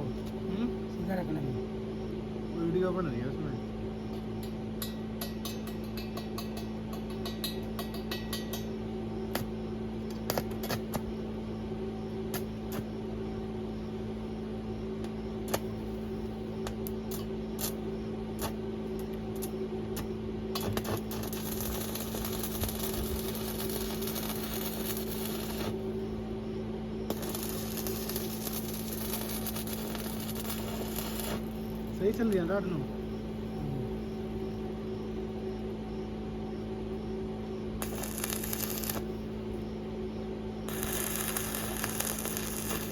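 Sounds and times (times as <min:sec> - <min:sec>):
welding machine hum: 0:04.1 - 0:11.4, 0:15.0 - 0:33.3, 0:37.7 - 0:39.7, 0:40.6 - 0:42.9
welding arc sizzling: 0:10.1 - 0:11.1, 0:15.5 - 0:26.0, 0:27.1 - 0:32.8, 0:37.8 - 0:39.2, 0:40.7 - 0:42.9.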